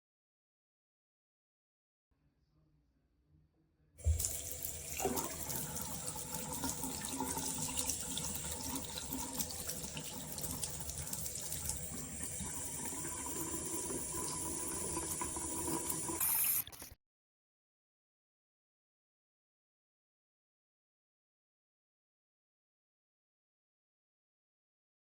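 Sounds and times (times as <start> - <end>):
tap water running into sink: 4.0 - 16.8.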